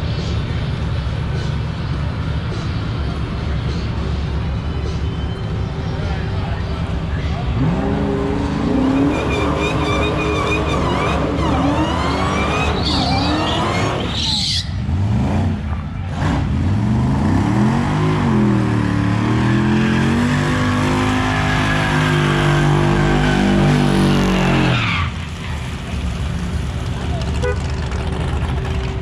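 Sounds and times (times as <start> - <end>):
car engine accelerating hard: 7.3 - 14.1.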